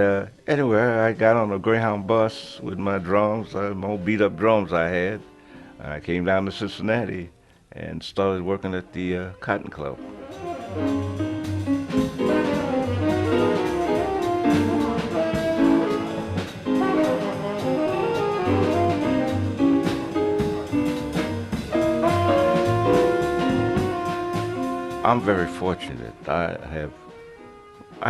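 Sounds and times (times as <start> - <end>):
jazz band playing: 8.6 - 28.0
drums: 10.2 - 28.0
horns playing melody: 10.2 - 28.0.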